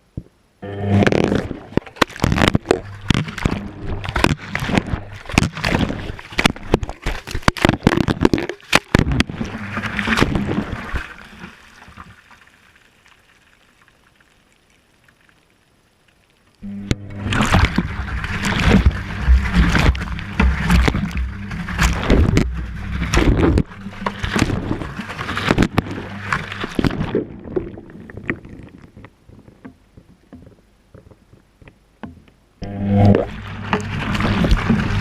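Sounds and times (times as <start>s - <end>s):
water sloshing and splashing: 1.0s - 35.0s
water dripping: 1.7s - 32.4s
washing machine motor hum: 16.6s - 26.7s, 32.6s - 35.0s.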